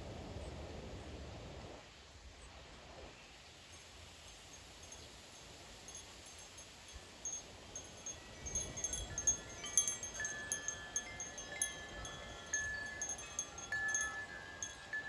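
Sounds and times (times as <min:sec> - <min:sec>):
wind chimes ringing: 0:05.9 - 0:15.0
low wind gust rumble: 0:07.4 - 0:15.0.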